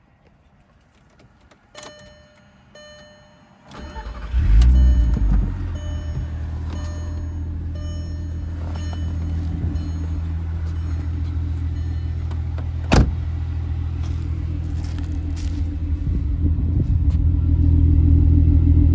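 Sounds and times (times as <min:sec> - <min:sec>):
short tones: 0:01.8 - 0:12.8
car engine idling: 0:03.7 - 0:18.9.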